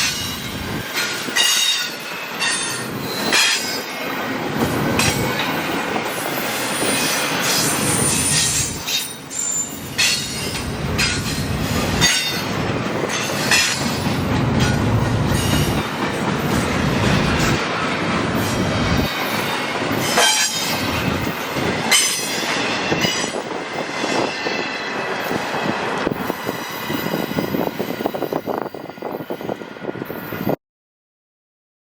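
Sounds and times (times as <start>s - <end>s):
train wheels squealing: 0.0s - 4.2s, 5.2s - 14.1s, 18.4s - 30.6s
train rumbling past: 0.0s - 30.6s.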